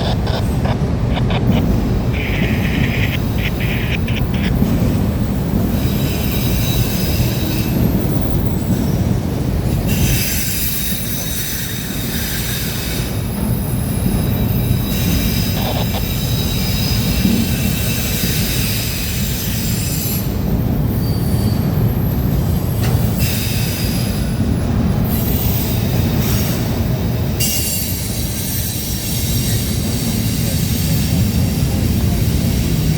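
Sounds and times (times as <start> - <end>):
freight train rumbling past: 0.0 - 32.9
wheels squealing on rails: 0.0 - 32.9.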